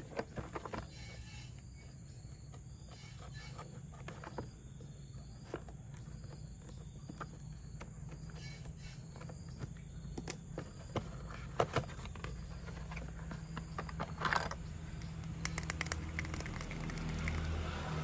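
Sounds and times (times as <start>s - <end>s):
toy parts clicking and tapping: 11.6s - 17.6s.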